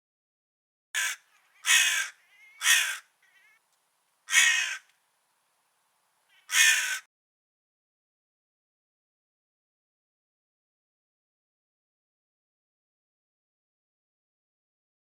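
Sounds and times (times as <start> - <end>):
crow cawing: 1.0 - 3.6, 4.3 - 4.9, 6.3 - 7.1.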